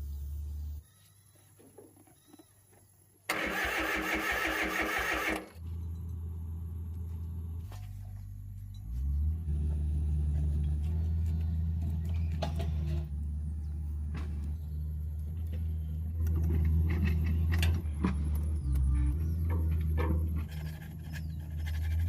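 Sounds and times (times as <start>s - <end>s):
engine starter cranking: 3.3s - 5.6s
engine running: 3.3s - 22.0s.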